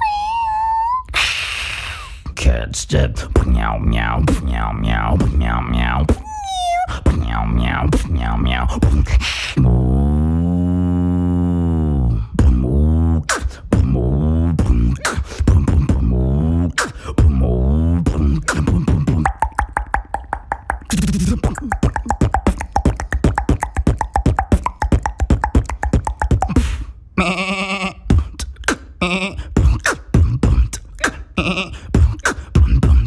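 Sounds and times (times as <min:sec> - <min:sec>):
beatboxing vocal bass: 0:01.0 - 0:33.0
clicking mouth percussion: 0:04.2 - 0:09.8, 0:12.4 - 0:17.4, 0:18.0 - 0:26.9, 0:28.1 - 0:33.0.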